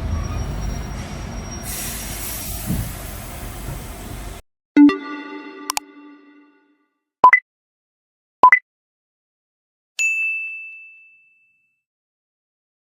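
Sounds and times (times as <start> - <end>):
rising two-note blips: 4.8 - 6.6
bell-like ding: 10.0 - 11.8.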